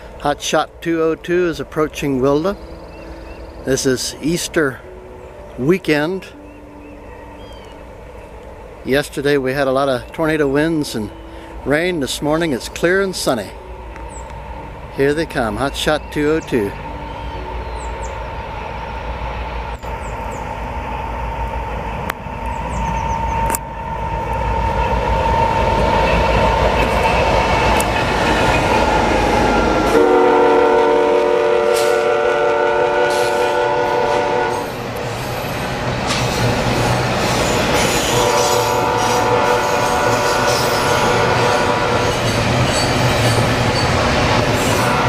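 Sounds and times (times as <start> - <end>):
freight train rumble: 0.0 - 45.0
rail noise: 0.0 - 45.0
locomotive air horn: 29.4 - 34.8, 37.9 - 42.2, 44.7 - 45.0.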